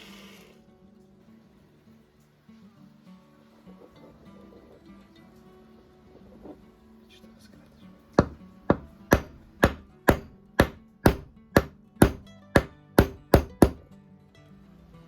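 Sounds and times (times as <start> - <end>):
background music: 1.1 - 15.0
hammer tapping: 8.2 - 13.8.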